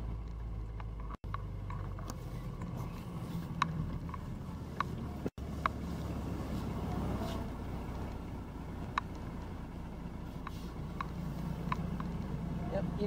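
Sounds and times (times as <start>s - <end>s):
diesel engine drone: 0.0s - 13.0s
faint ticks: 10.4s - 12.3s.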